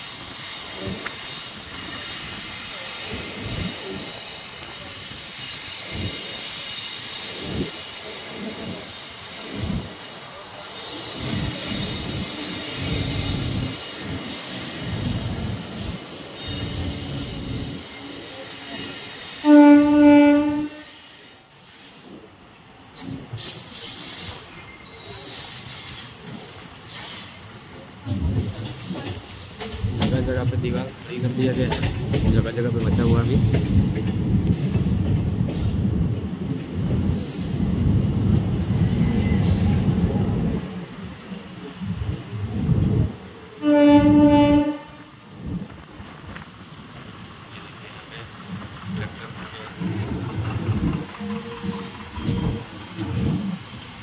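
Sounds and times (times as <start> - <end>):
high-pitched wheel squeal: 0.0 - 22.2, 49.8 - 54.0
train running on rails: 0.0 - 54.0
train horn blast: 19.4 - 21.0, 43.6 - 45.2.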